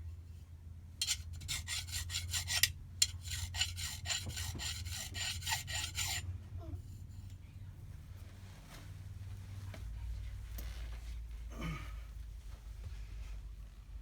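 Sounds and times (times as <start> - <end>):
hand file rasping on metal: 1.0 - 6.2.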